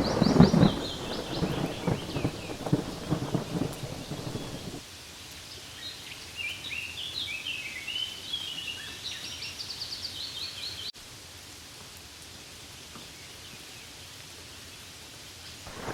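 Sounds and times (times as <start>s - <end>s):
songbird singing: 0.0s - 4.8s
light rain hiss: 0.0s - 15.9s.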